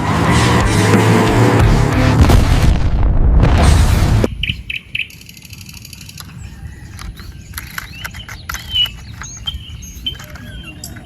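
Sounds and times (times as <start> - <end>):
small birds chirping: 4.3 - 11.0.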